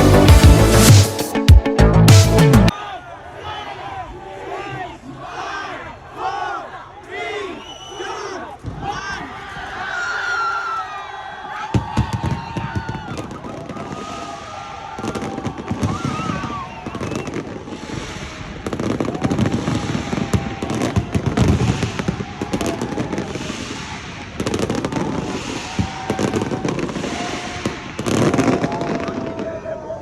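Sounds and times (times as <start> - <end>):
crowd voices: 2.7 - 30.0
fireworks bangs and crackles: 11.6 - 30.0.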